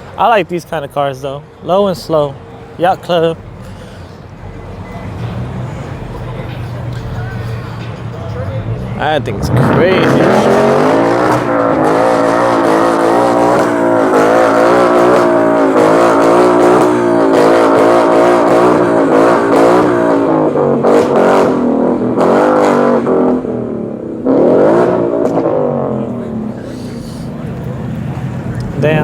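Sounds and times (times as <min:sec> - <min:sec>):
car engine revving at high revs: 0:08.6 - 0:29.0.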